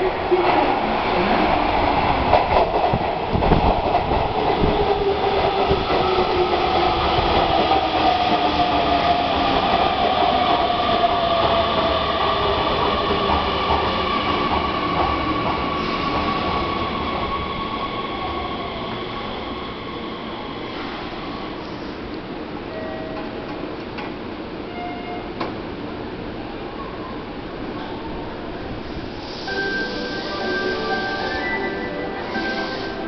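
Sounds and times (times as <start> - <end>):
falling train whine: 28.2 - 33.0.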